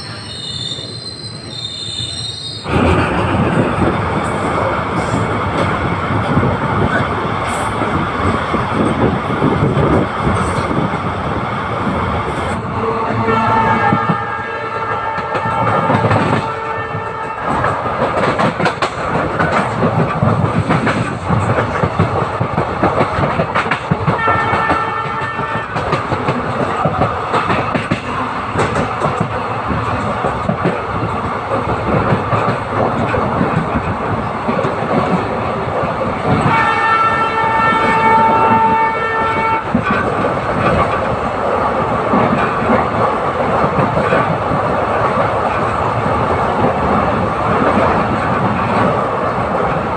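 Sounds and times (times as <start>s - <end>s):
locomotive horn: 12.7s - 17.8s, 24.1s - 26.0s, 36.4s - 40.1s.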